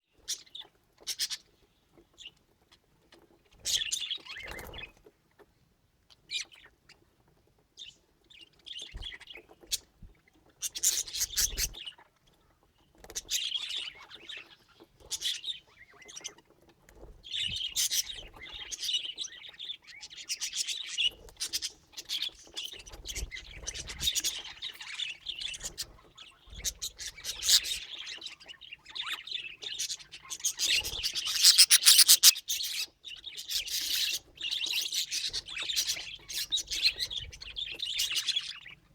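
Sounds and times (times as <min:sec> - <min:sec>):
budgerigar chirping: 0:26.8 - 0:27.8, 0:30.5 - 0:34.2.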